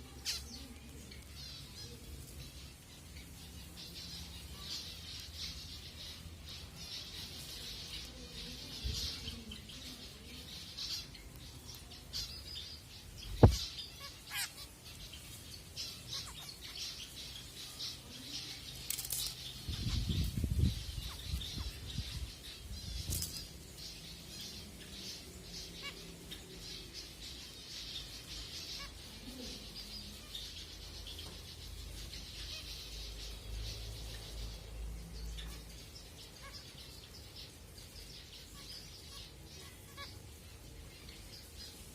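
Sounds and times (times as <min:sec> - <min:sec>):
finches chirping: 0:00.0 - 0:41.9.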